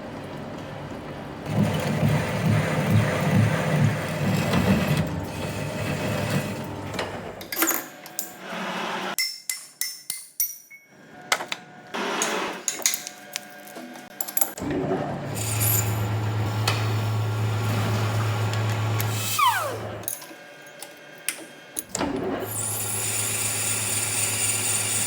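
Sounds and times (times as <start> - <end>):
metalworking machine rumbling: 1.4 - 7.5, 14.5 - 20.2.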